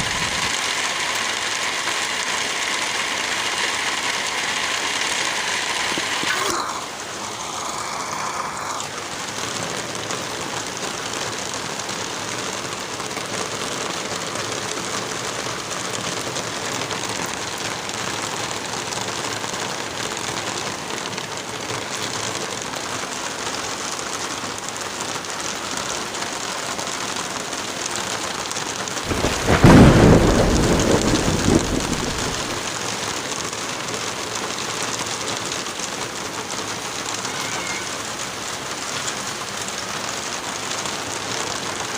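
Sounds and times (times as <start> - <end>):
steady rain: 0.0 - 41.9
thunder rolling: 29.0 - 32.7.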